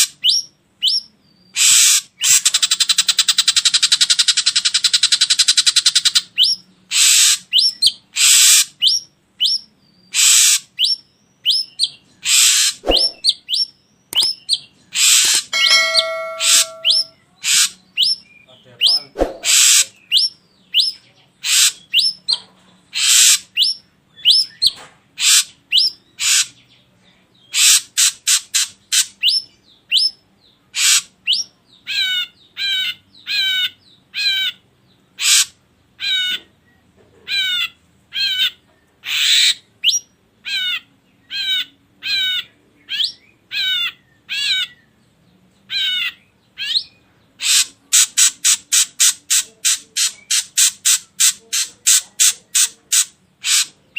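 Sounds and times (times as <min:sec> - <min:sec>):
bird calling with harsh whistled notes: 0:00.0 - 0:22.4, 0:23.0 - 0:26.6.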